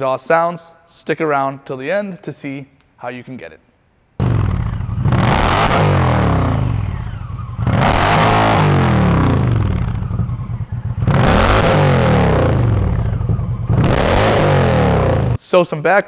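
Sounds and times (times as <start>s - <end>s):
motorcycle engine revving: 4.2s - 15.4s.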